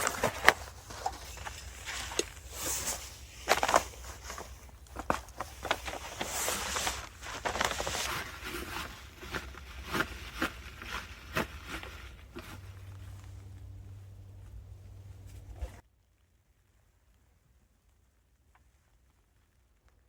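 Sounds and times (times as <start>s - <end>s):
fabric and bags rustling: 0.0s - 15.8s.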